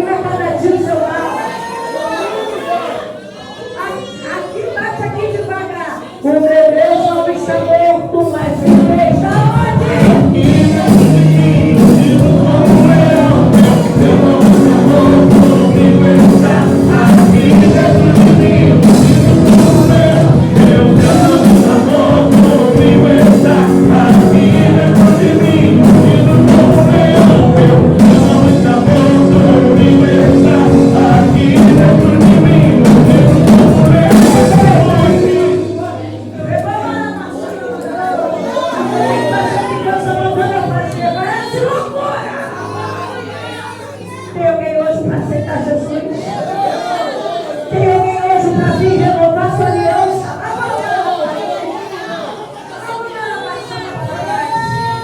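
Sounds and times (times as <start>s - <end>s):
worship music with singing: 5.3s - 55.0s
drum hits: 8.4s - 36.7s.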